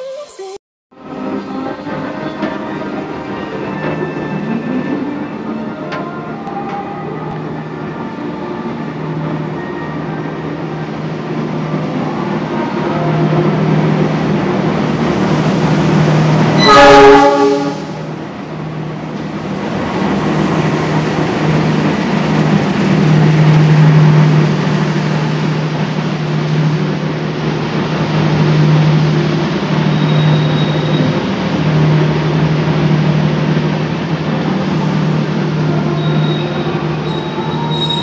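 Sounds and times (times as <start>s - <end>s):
diesel locomotive engine hum: 0.9s - 38.0s
wheels rumbling on rails: 1.0s - 38.0s
train horn: 16.6s - 18.1s.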